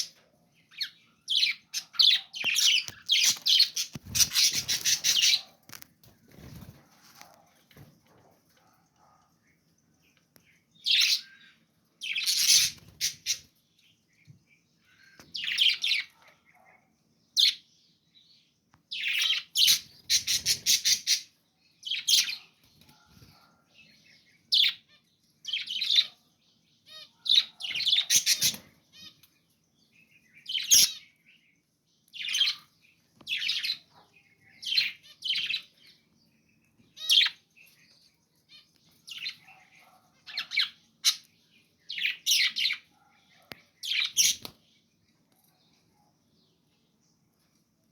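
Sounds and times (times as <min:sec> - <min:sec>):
budgerigars chirping and squawking: 0:00.0 - 0:07.9, 0:10.8 - 0:13.6, 0:14.8 - 0:17.6, 0:18.9 - 0:29.3, 0:30.0 - 0:31.2, 0:32.2 - 0:36.0, 0:36.8 - 0:44.6.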